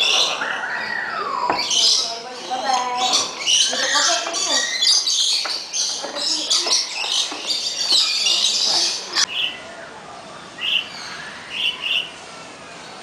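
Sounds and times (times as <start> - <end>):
short bird calls: 0.0 - 9.8
small birds chirping and chattering: 0.0 - 13.0.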